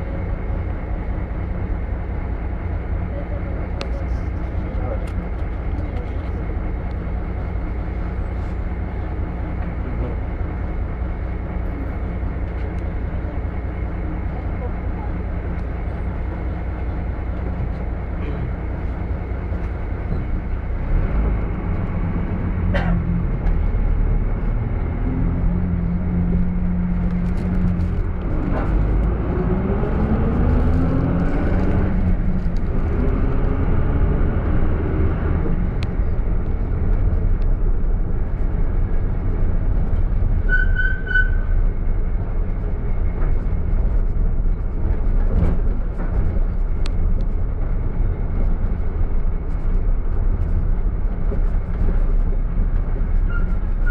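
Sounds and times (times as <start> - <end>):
minibus engine running: 0.0 - 53.9
street traffic: 0.0 - 53.9
vehicle accelerating: 19.6 - 40.4
brief high squeal: 40.5 - 41.5.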